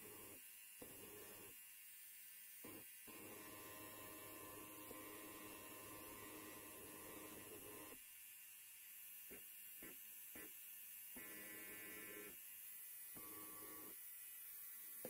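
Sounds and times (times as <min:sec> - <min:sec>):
electric hair clipper buzzing: 0:00.0 - 0:01.6, 0:02.6 - 0:08.0, 0:09.1 - 0:15.0.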